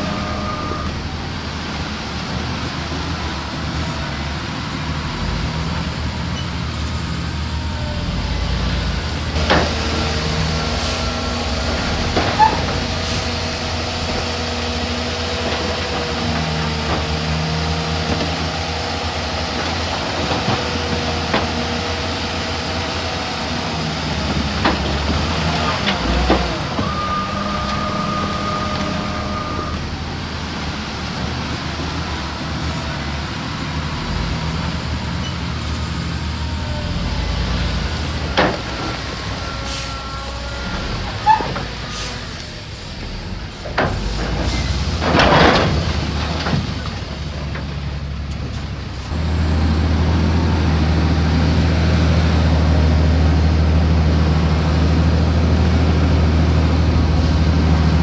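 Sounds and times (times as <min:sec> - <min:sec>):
heavy diesel engines running: 0:00.0 - 0:58.0.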